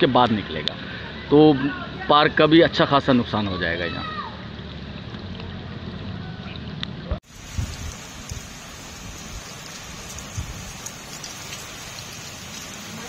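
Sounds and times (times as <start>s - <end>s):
heavy rain on water: 7.2s - 13.0s.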